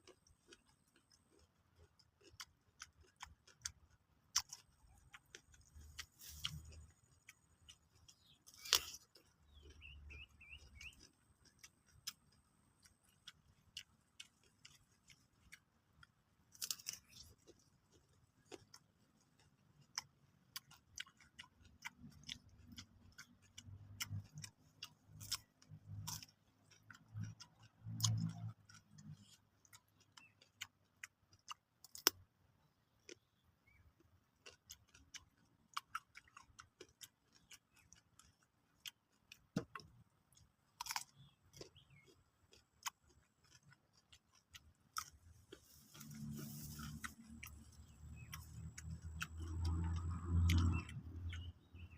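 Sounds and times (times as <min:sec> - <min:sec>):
crunchy chewing: 0:00.0 - 0:51.9
wet mouth clicks: 0:19.4 - 0:32.2, 0:42.6 - 0:51.9.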